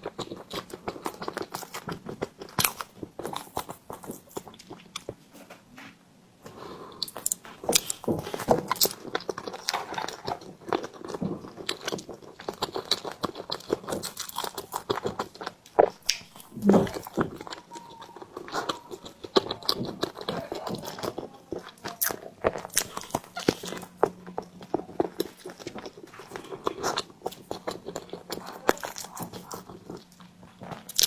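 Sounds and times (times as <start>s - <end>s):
person chewing bread: 0.0s - 31.0s.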